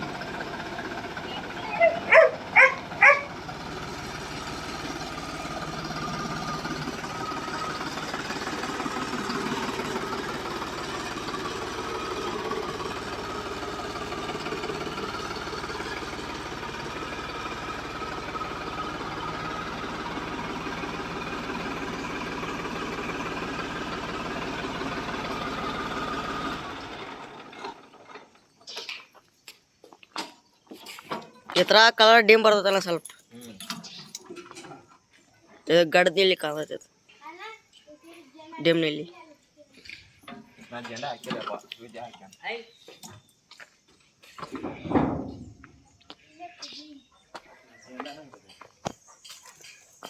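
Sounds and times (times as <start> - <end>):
motor running steadily: 0.0 - 27.2.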